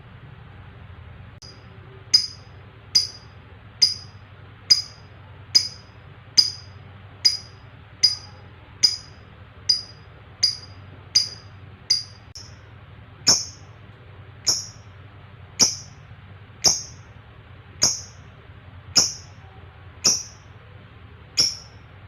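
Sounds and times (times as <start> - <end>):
lovebird chirping: 1.4 - 12.6, 13.2 - 13.7, 14.5 - 14.9, 15.6 - 16.0, 17.8 - 18.2, 19.0 - 19.4, 20.0 - 20.5, 21.4 - 21.9.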